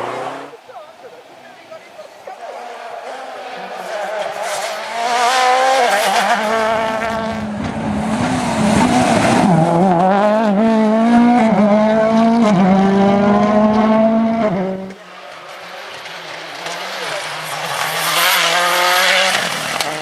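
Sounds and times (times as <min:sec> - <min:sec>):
car engine revving hard: 0:02.5 - 0:15.0, 0:16.6 - 0:20.0.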